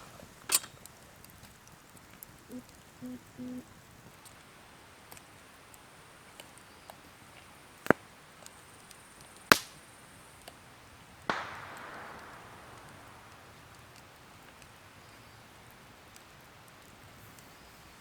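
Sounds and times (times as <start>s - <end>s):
sharp clicks: 11.3s - 14.7s
sudden hiss: 11.3s - 15.6s.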